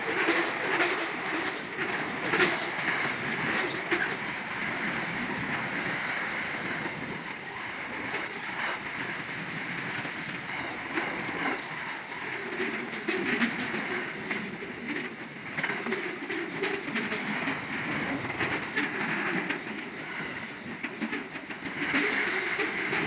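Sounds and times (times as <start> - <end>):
sharp clicks and clanks: 0.0 - 23.0
steel wheels on rail: 0.0 - 23.0.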